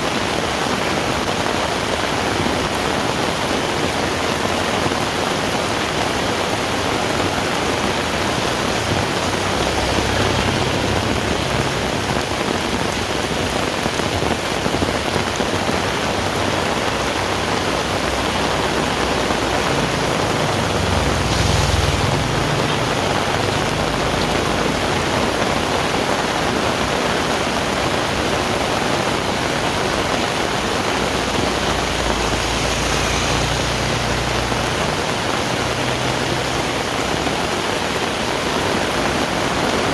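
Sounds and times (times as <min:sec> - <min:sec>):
heavy rain falling: 0:00.0 - 0:39.9
low rumble: 0:18.8 - 0:24.8.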